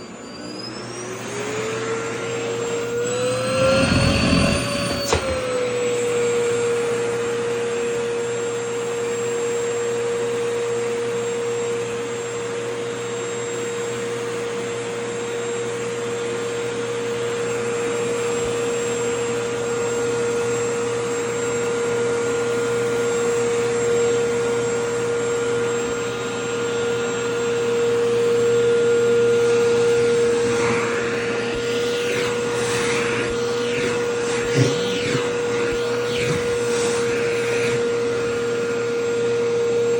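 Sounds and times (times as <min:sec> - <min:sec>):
wavering whistles in airflow: 0:00.0 - 0:06.3, 0:17.4 - 0:39.9
vacuum cleaner running: 0:00.0 - 0:39.9
nozzle sucking at fabric: 0:29.6 - 0:38.0.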